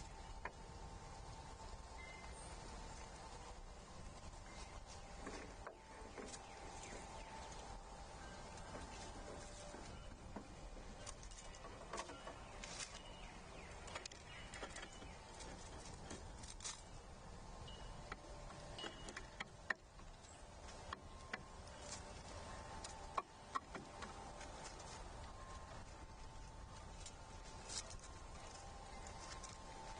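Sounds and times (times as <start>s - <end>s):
faint bird chirps: 2.0s - 2.7s
animals tapping on wooden feeder: 4.2s - 17.0s, 17.6s - 29.9s.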